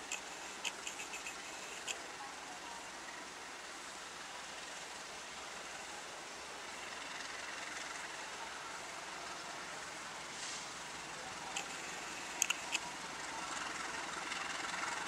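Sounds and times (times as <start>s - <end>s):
sharp high clicks: 0.0s - 2.0s, 11.5s - 12.9s
diesel locomotive running: 0.0s - 15.0s.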